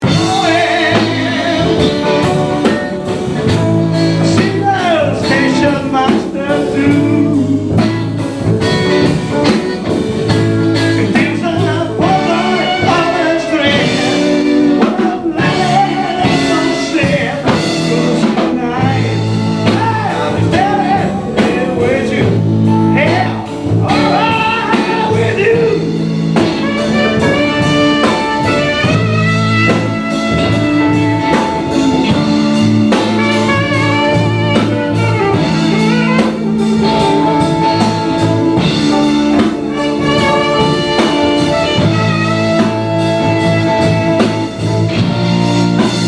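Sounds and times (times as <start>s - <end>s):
person singing: 0.0s - 2.9s, 4.0s - 8.3s, 10.3s - 32.5s
blues band playing: 0.0s - 46.0s.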